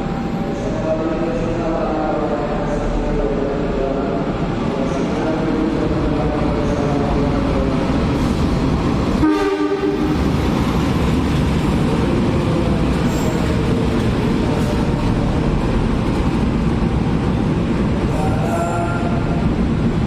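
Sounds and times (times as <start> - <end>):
train engines and wheels on rail: 0.0 - 20.0
train horn blast: 9.2 - 10.1.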